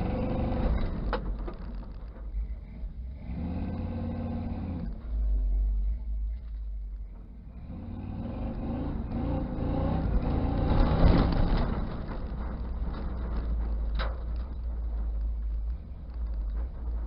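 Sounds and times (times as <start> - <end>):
pickup engine revving hard: 3.2 - 4.8, 7.6 - 11.6.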